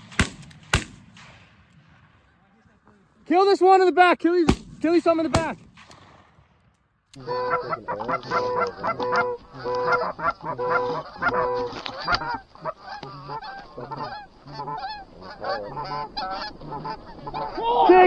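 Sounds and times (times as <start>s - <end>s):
geese honking: 7.2s - 18.0s.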